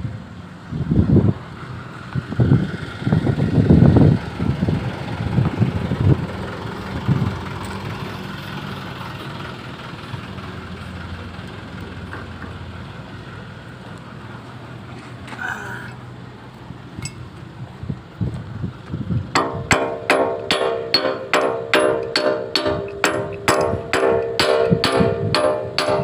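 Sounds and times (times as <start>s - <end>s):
diesel engine idling: 1.4s - 14.8s, 19.2s - 26.0s
knocks: 19.4s - 26.0s.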